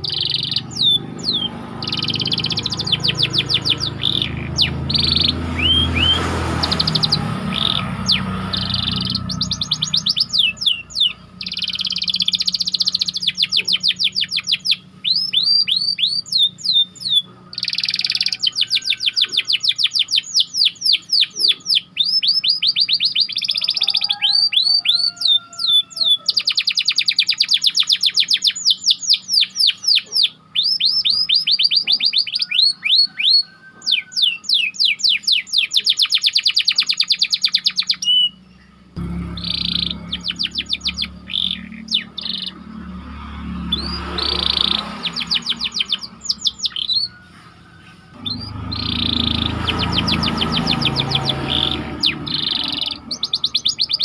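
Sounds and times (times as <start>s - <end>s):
canary singing trills: 0.0s - 54.0s
low rumble: 39.0s - 41.7s, 48.1s - 53.2s.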